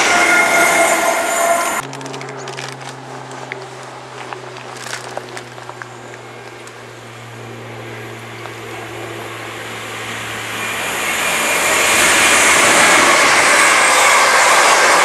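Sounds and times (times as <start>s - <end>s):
passenger train approaching: 0.0s - 15.0s
steady low hum: 1.8s - 14.8s.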